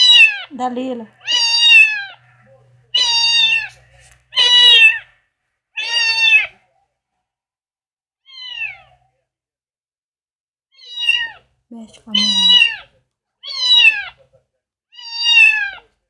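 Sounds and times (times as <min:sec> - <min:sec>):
cat meowing: 0:00.0 - 0:05.1, 0:05.8 - 0:06.6, 0:08.2 - 0:09.0, 0:10.8 - 0:14.2, 0:14.9 - 0:15.9.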